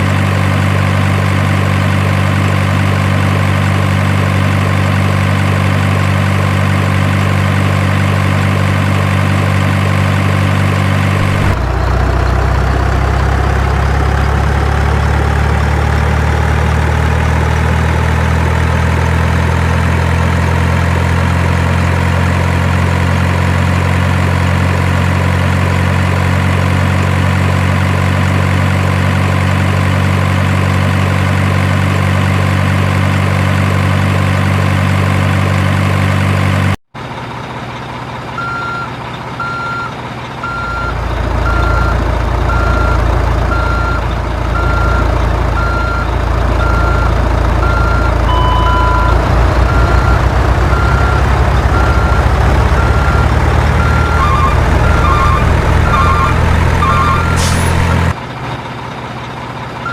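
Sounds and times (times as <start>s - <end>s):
truck engine running: 0.0s - 59.9s
reversing alarm beeping: 11.2s - 11.6s, 38.4s - 44.0s, 44.6s - 58.1s.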